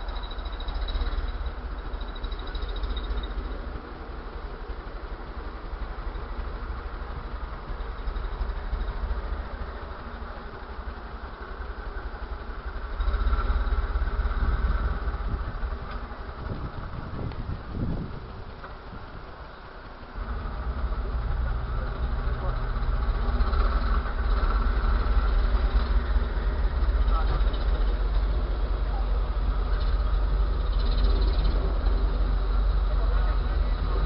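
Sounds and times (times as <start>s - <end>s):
vehicle engine idling: 0.0s - 34.0s.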